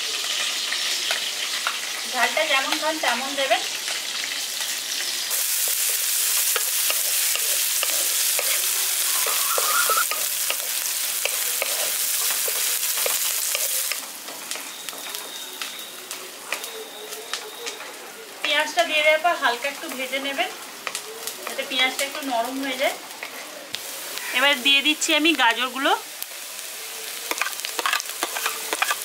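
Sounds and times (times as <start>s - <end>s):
onions sizzling in hot oil: 0.0s - 29.0s
wooden spatula stirring in pan: 27.1s - 29.0s.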